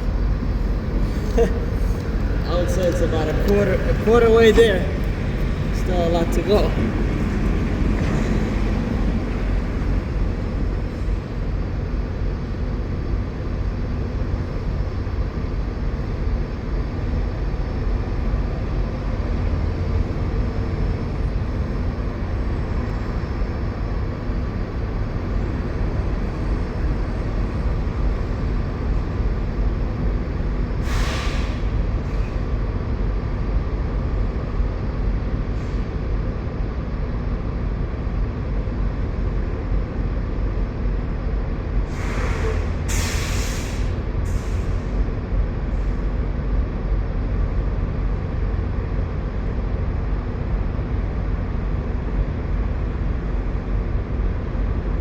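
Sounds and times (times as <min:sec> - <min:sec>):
diesel truck engines idling: 0:00.0 - 0:55.0
short hiss: 0:30.9 - 0:31.7, 0:42.0 - 0:44.9.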